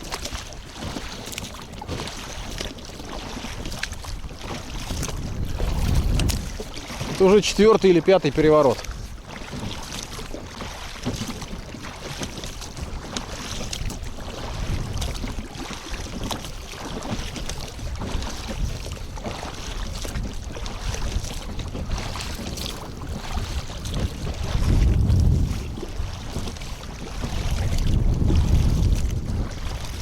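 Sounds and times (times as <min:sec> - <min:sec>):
water lapping: 0:00.0 - 0:30.0
wind buffeting microphone: 0:03.3 - 0:10.4, 0:12.6 - 0:30.0
light knock against hull: 0:04.9 - 0:07.2.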